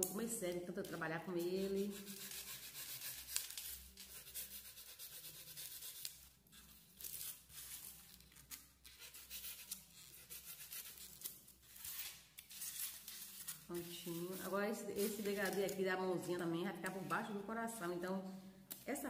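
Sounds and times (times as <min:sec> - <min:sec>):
knife cutting styrofoam: 0:01.4 - 0:15.8.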